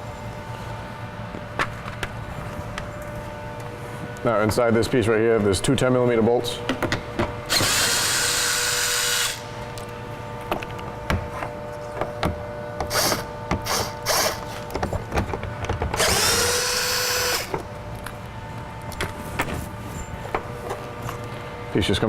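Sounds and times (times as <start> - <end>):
cordless power driver whirring: 7.5 - 9.5, 12.9 - 14.5, 16.0 - 17.5.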